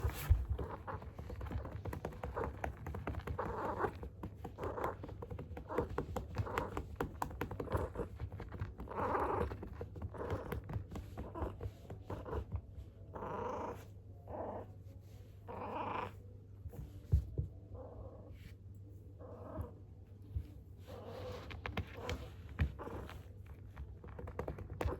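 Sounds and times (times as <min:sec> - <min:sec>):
hand patting cat: 0:00.0 - 0:12.6.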